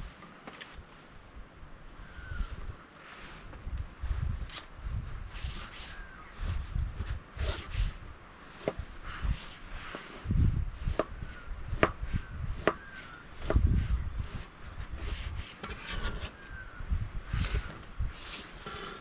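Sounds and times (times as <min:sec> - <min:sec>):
faint bird chirps: 0:02.0 - 0:03.0, 0:05.8 - 0:06.4, 0:11.2 - 0:14.2, 0:16.2 - 0:18.2.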